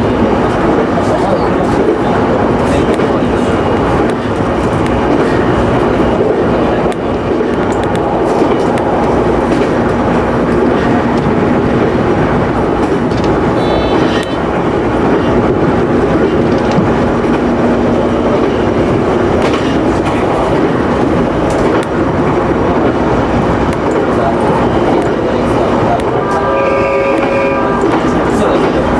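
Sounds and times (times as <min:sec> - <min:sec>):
train rolling noise: 0:00.0 - 0:28.9.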